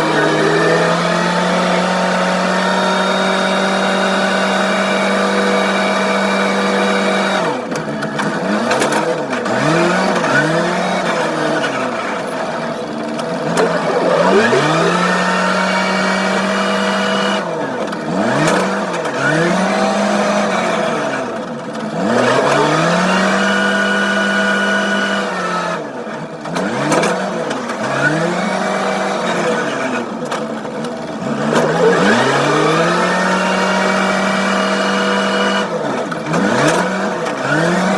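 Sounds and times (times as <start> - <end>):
loader engine revving: 13.0 - 16.3, 31.1 - 34.4.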